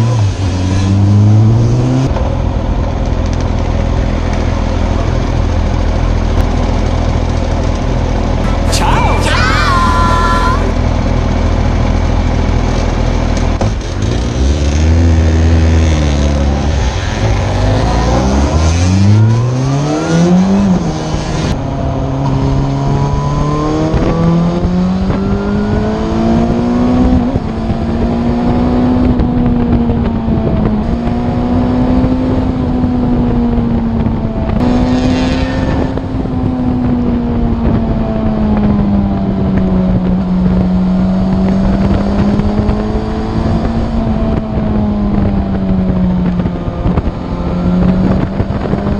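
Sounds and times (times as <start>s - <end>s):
motorcycle engine accelerating: 10.8s - 48.9s.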